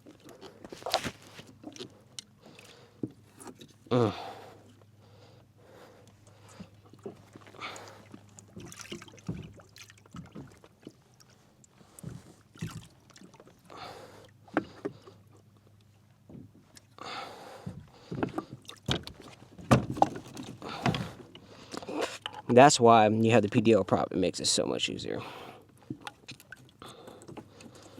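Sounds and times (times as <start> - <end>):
knocks and clunks of handling: 17.7 - 22.6.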